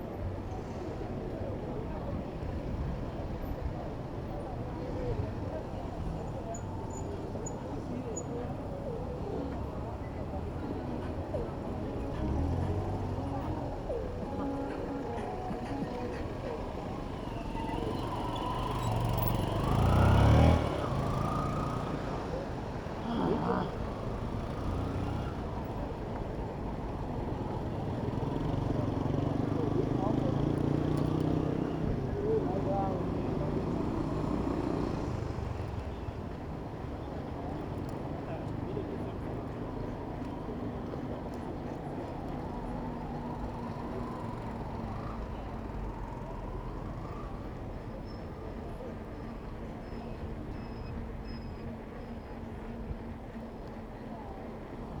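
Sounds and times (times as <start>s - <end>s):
city road traffic: 0.0s - 55.0s
vehicle engine passing close: 9.8s - 26.0s.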